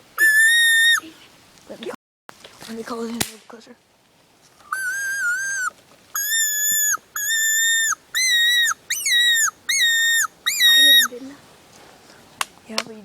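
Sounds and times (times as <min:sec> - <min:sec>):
game call squealing notes: 0:04.7 - 0:11.1.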